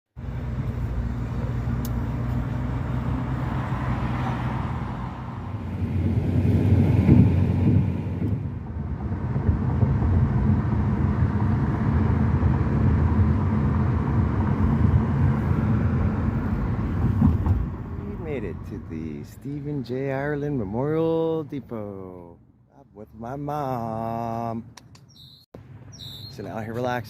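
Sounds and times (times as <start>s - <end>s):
engine rumbling: 0.2s - 27.0s.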